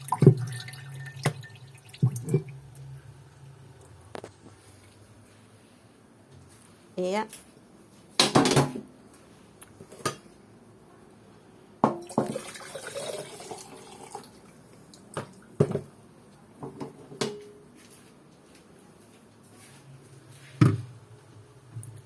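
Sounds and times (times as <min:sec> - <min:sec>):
water dripping into a pot: 0:00.0 - 0:02.9
low steady hum: 0:00.0 - 0:07.8.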